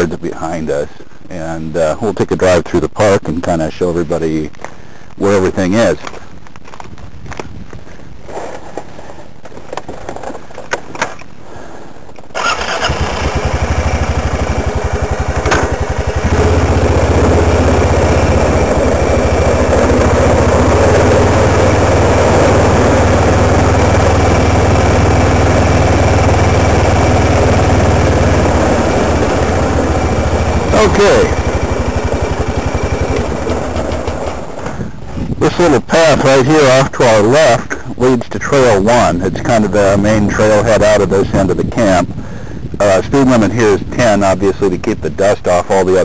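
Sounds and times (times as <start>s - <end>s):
quad engine pulling away: 12.4s - 34.7s
quad engine starting and idling: 12.4s - 34.9s.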